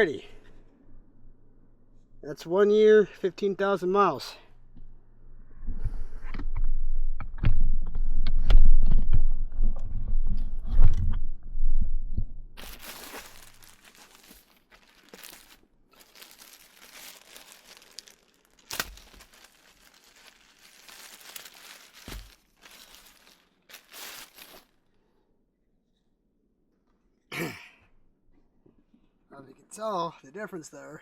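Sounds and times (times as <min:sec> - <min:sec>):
plastic packaging crinkling and tearing: 0:12.6 - 0:24.8.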